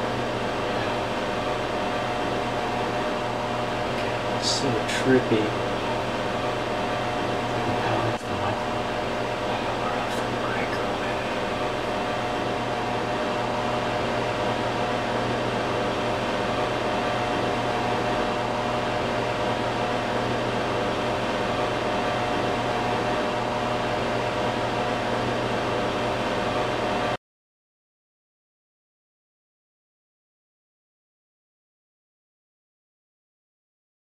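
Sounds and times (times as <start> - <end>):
microwave oven running: 0.0 - 27.2.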